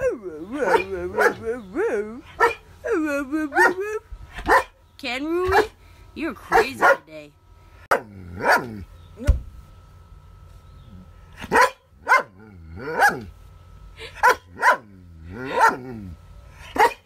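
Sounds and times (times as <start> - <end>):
dog barking: 0.7 - 1.5, 2.4 - 2.6, 4.4 - 4.8, 5.5 - 5.8, 6.5 - 7.1, 7.9 - 8.7, 11.5 - 12.4, 13.0 - 13.3, 14.2 - 14.9, 15.5 - 15.8, 16.7 - 17.0.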